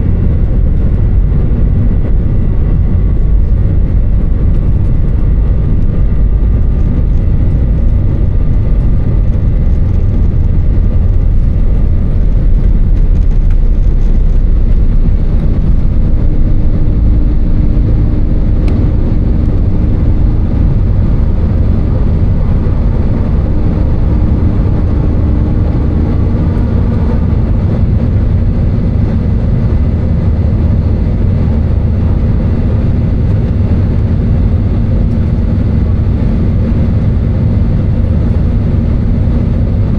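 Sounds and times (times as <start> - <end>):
aircraft cabin engine rumble: 0.0 - 39.9
faint steady hum: 0.0 - 39.9.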